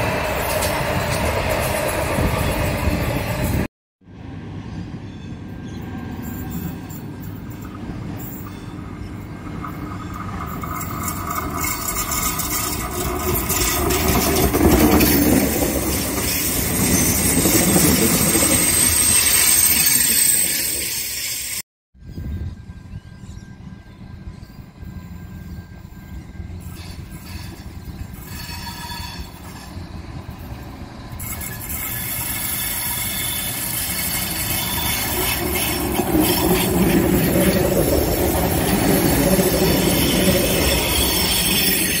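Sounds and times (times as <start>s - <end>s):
diesel railcar passing: 0.0s - 21.6s, 22.4s - 42.0s
high thin wheel squeal: 6.2s - 21.6s, 24.4s - 42.0s.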